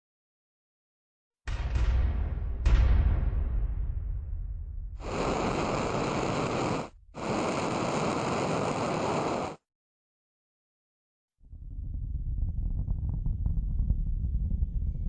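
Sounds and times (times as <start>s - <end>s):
rocket engine roar: 5.0s - 9.6s.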